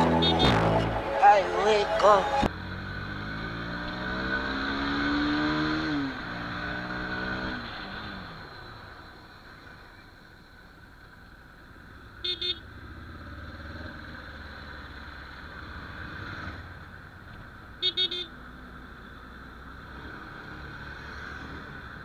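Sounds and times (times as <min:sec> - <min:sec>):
vehicle horn beeping: 0:00.0 - 0:02.5, 0:17.8 - 0:18.3
road traffic rumble: 0:00.0 - 0:08.3.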